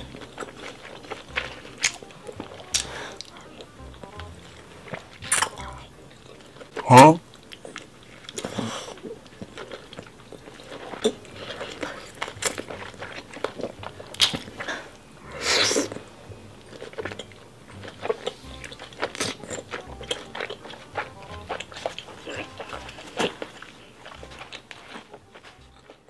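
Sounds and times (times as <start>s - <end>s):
wet chewing and lip-smacking: 0.0s - 26.0s
mouth clicks: 1.3s - 5.9s
slurping off fingers: 14.3s - 16.1s.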